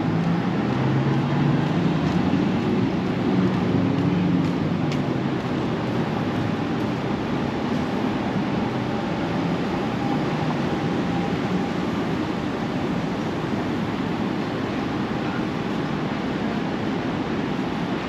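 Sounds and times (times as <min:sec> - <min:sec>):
passing traffic rumble: 0:00.0 - 0:18.0.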